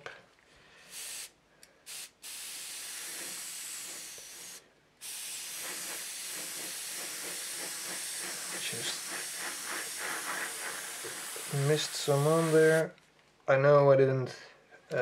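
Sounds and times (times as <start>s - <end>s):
airbrush air hiss: 0.8s - 12.9s.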